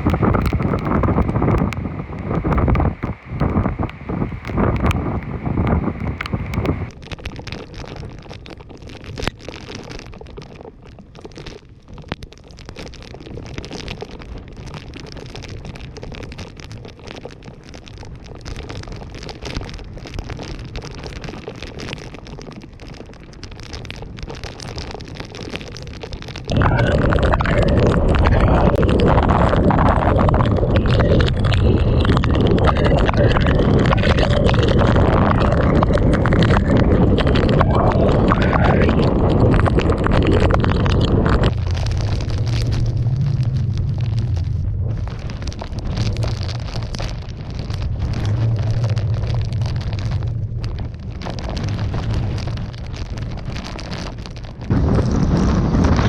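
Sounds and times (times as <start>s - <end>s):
wind buffeting microphone: 0.0s - 7.0s, 26.4s - 56.0s
driving rain: 0.0s - 11.5s, 12.7s - 56.0s.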